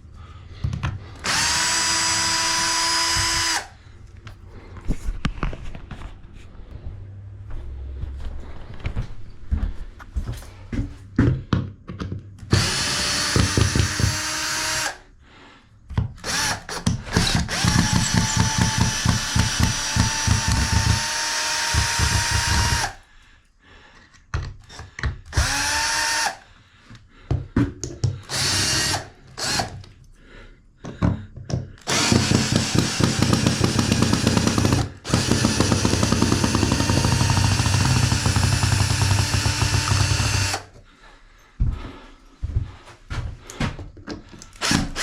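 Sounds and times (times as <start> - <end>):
power drill running: 1.2 - 3.8, 12.5 - 15.0, 16.2 - 23.0, 24.7 - 26.4, 28.3 - 29.9, 31.8 - 40.7, 44.5 - 45.0.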